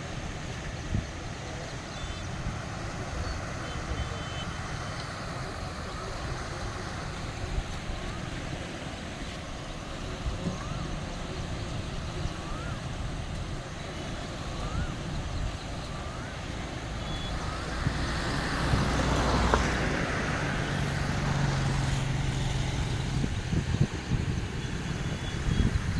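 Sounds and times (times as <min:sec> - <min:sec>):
vehicle engine passing: 0:16.8 - 0:25.5.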